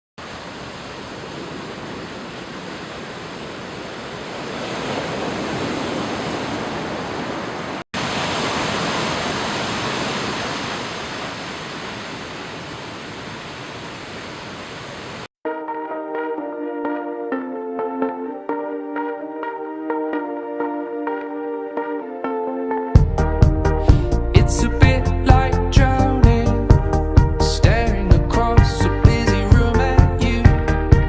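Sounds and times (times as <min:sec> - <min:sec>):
sea waves washing onto beach: 0:00.2 - 0:15.3
music: 0:15.4 - 0:31.0.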